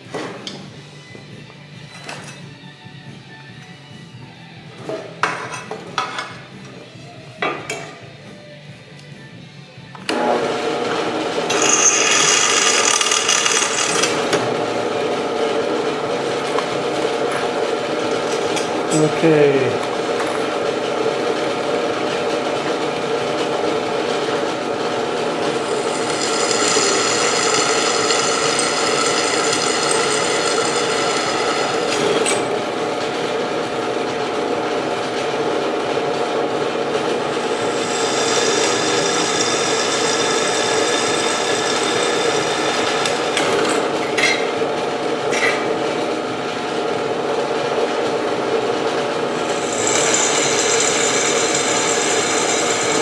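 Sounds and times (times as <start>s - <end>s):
electric drill running: 10.1s - 44.2s, 48.6s - 53.0s
drill bit squealing: 11.5s - 14.4s, 25.2s - 32.7s, 37.2s - 44.6s, 49.3s - 53.0s.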